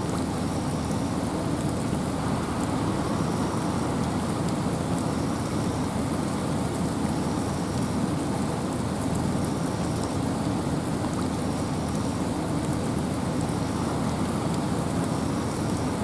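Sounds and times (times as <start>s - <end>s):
rain falling: 0.0s - 16.0s
wind: 0.0s - 16.0s.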